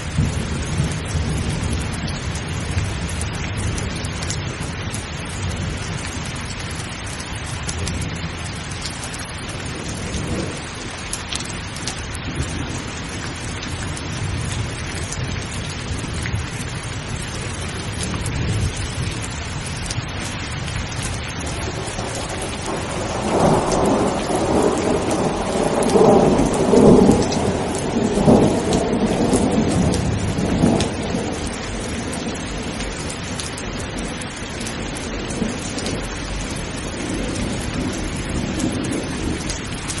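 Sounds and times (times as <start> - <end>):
steady rain falling: 0.0 - 40.0
thunder rumbling: 0.0 - 40.0.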